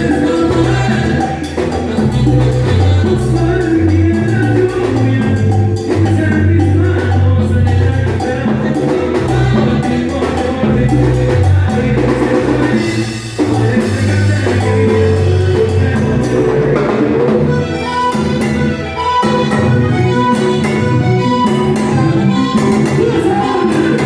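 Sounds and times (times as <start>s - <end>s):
salsa dance-band music: 0.0s - 24.0s.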